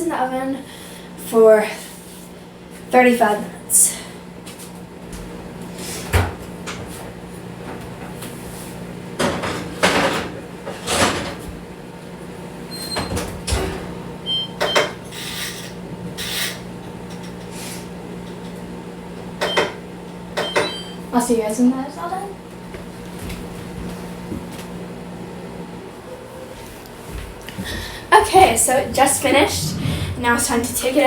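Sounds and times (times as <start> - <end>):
oven door opening and shutting: 12.7 - 14.0.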